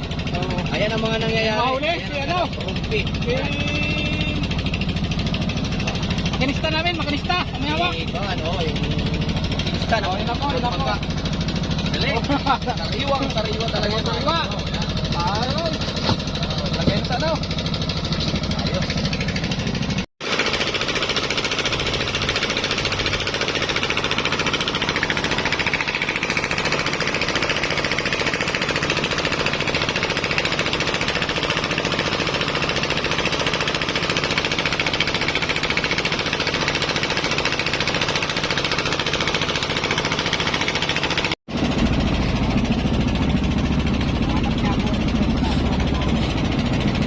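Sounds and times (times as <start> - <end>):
engine rattling: 0.0 - 47.0.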